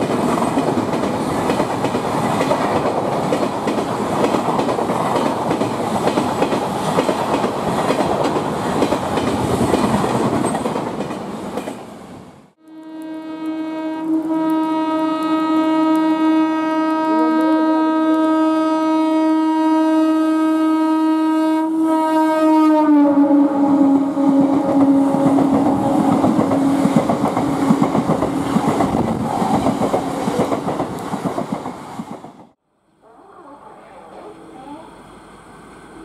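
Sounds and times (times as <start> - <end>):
train rushing past: 0.0 - 12.6, 22.6 - 32.6
train horn blast: 12.6 - 28.6.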